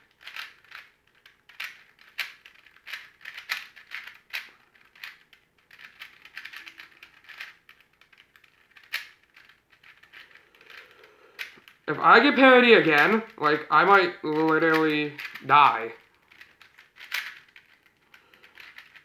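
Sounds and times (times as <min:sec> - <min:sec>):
puzzle cube pieces clicking: 0:00.0 - 0:19.0.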